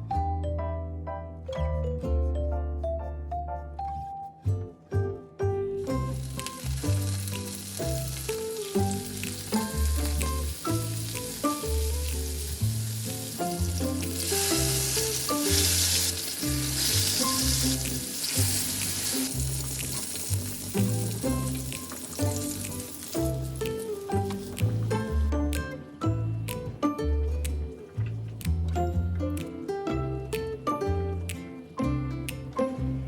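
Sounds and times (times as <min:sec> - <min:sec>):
background music: 0:00.0 - 0:33.0
fish frying in hot oil: 0:05.9 - 0:25.0.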